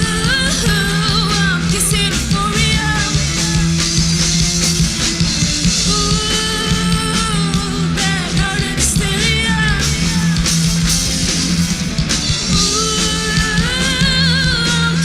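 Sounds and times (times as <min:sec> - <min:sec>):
person singing: 0:00.0 - 0:03.9, 0:05.8 - 0:10.6, 0:12.5 - 0:15.0
rock band playing live: 0:00.0 - 0:15.0.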